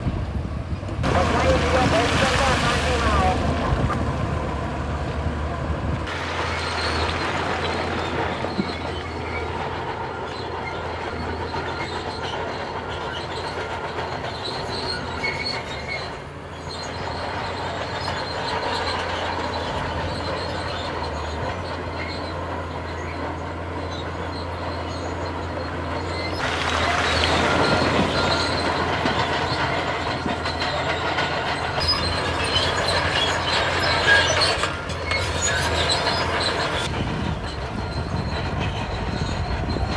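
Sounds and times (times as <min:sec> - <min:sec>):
diesel engine drone: 0:00.0 - 0:39.9
metal tracks clanking and squealing: 0:00.8 - 0:39.9.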